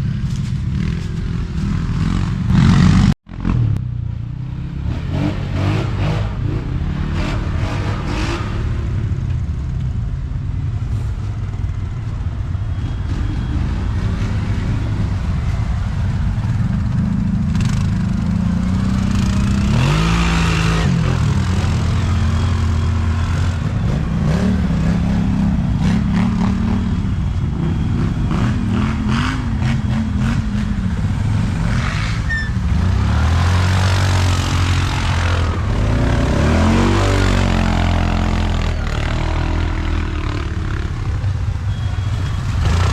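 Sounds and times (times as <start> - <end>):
quad engine revving: 17.6 - 26.8, 27.6 - 40.9.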